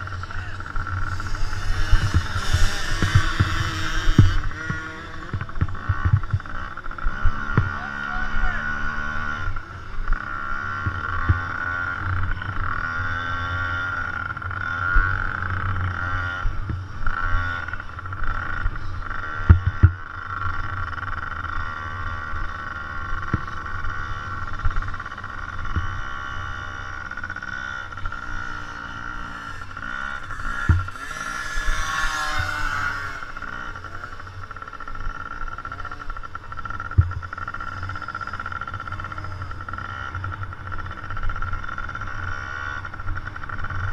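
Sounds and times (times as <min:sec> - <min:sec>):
dirt bike engines revving: 0:00.0 - 0:43.9.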